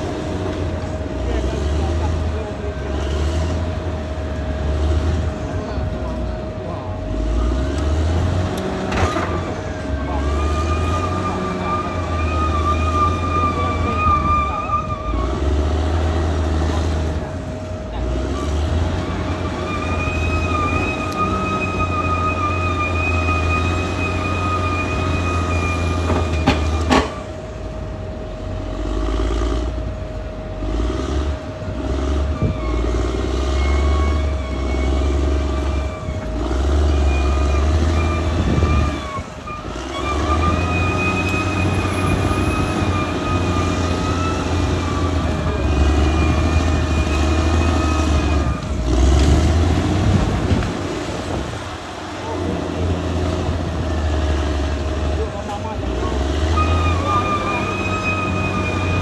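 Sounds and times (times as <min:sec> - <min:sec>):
bulldozer diesel engine: 0:00.0 - 0:59.0
high whine: 0:08.9 - 0:28.8.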